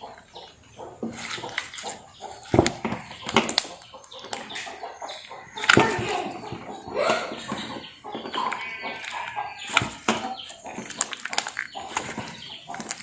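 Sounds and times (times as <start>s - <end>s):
hands squelching wet slime: 8.5s - 13.0s.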